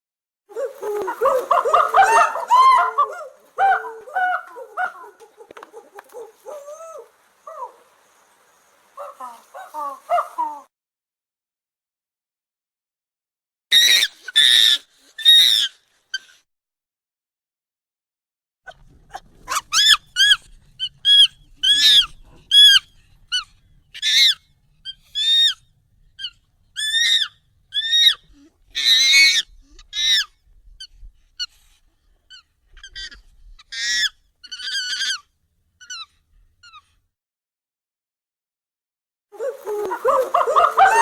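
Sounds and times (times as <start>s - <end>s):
high-pitched monkey calls: 0.6s - 7.8s, 9.0s - 10.7s, 13.7s - 16.3s, 18.7s - 31.5s, 32.3s - 36.9s, 39.4s - 41.0s.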